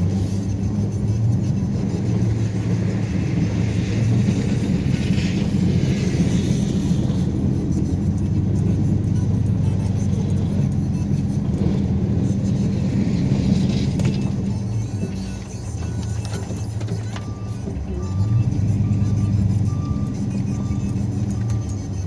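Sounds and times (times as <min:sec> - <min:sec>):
music playing: 0:00.0 - 0:22.0
vehicle engine running: 0:00.0 - 0:22.0.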